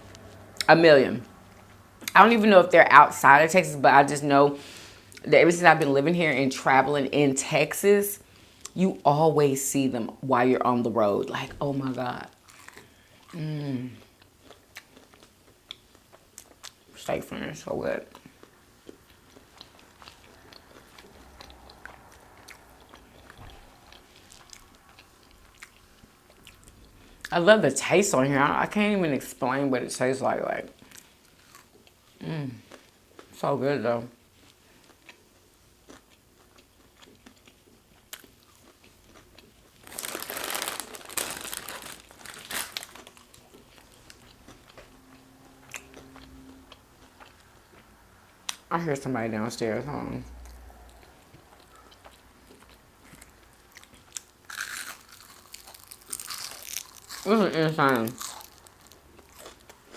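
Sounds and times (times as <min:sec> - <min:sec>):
person chewing food: 0:12.4 - 0:16.9, 0:18.1 - 0:27.3, 0:30.8 - 0:33.4, 0:34.4 - 0:48.6, 0:50.5 - 0:59.9.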